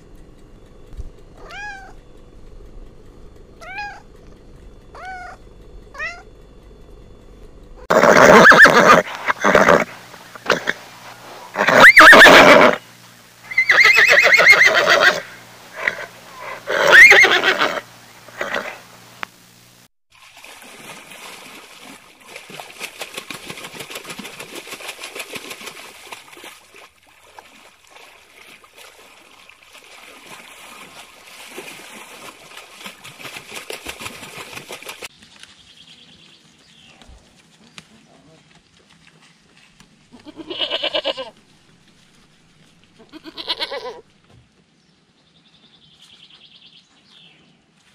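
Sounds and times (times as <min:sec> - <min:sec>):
horse neighing: 0:07.8 - 0:12.8, 0:13.4 - 0:18.9, 0:40.2 - 0:41.3, 0:43.0 - 0:44.0.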